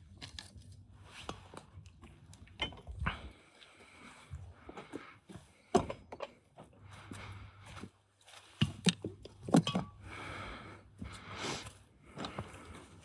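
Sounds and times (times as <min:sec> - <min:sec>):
tools clinking and knocking: 0:08.6 - 0:10.0.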